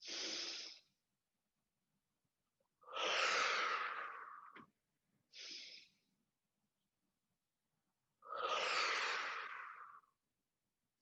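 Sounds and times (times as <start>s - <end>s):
person breathing deeply: 0.0s - 1.0s, 5.3s - 6.1s.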